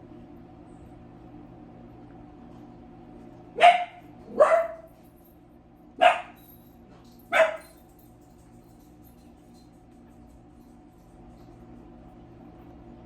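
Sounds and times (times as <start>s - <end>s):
dog barking: 3.6s - 4.9s, 6.0s - 6.4s, 7.3s - 7.8s.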